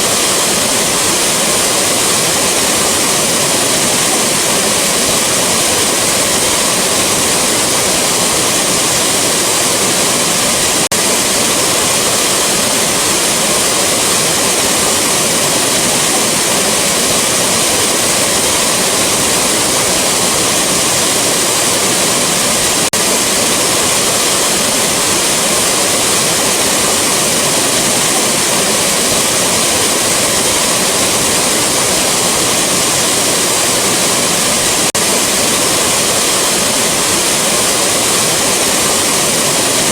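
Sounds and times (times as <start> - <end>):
rushing waterfall: 0.0 - 39.9.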